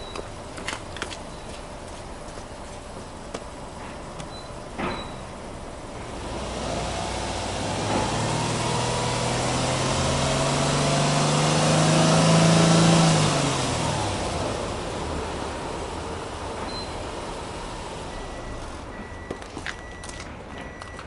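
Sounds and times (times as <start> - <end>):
car engine revving: 6.1 - 16.6.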